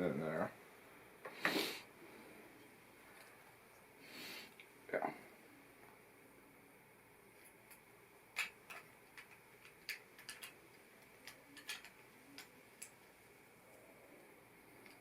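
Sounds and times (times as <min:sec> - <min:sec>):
plastic bricks clicking: 0:08.3 - 0:13.0.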